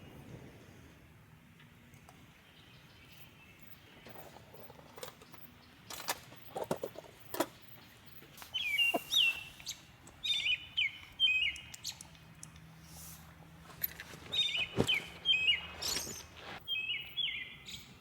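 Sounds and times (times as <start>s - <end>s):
small bird chirping: 2.5s - 12.6s, 14.3s - 18.0s.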